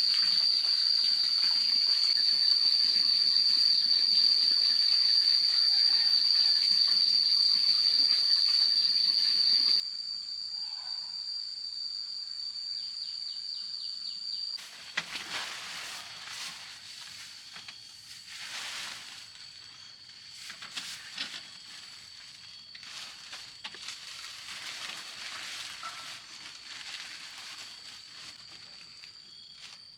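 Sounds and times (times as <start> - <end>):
running water hissing: 0.0 - 9.8
high-pitched insect drone: 0.0 - 14.6
rustling: 14.6 - 29.9.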